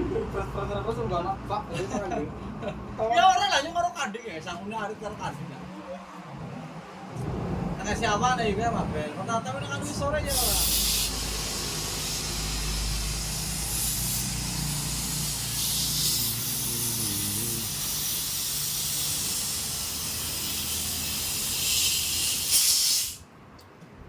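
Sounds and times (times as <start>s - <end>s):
loud steady hissing: 10.1s - 23.3s.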